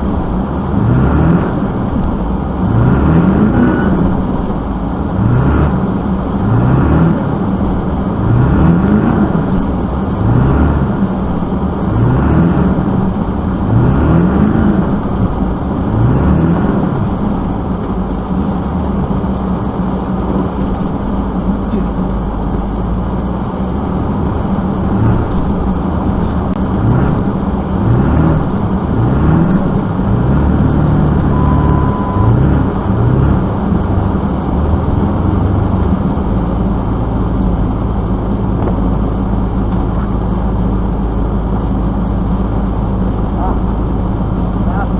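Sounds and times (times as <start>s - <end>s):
motor vehicle running: 0.0s - 44.9s
short rising whine: 24.0s - 40.3s.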